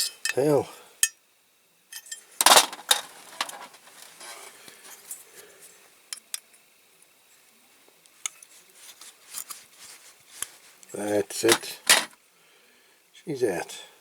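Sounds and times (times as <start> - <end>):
metal tools clinking and scraping: 1.9 - 4.5, 11.4 - 12.2.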